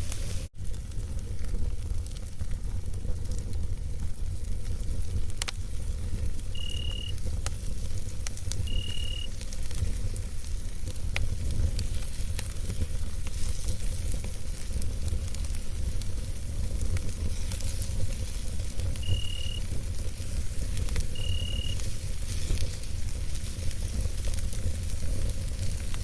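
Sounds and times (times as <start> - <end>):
campfire crackling and popping: 0.0 - 26.0
short high-pitched chirps: 6.6 - 7.1, 8.7 - 9.3, 19.0 - 19.6, 21.2 - 21.8.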